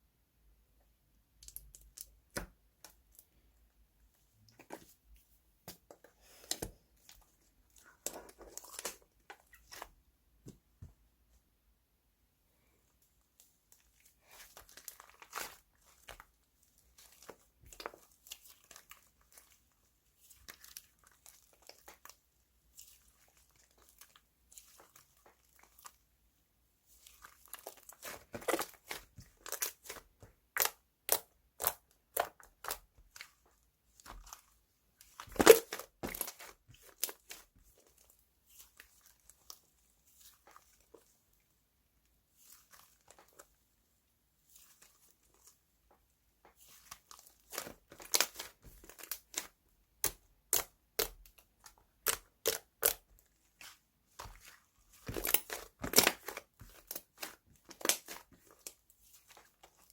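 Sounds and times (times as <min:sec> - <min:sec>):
hands playing with slime: 0:05.7 - 0:11.0, 0:13.6 - 0:26.0, 0:26.9 - 0:41.4, 0:44.4 - 0:59.9.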